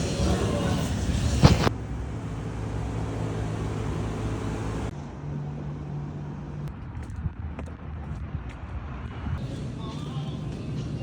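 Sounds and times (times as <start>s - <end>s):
truck engine droning: 0.0s - 6.8s.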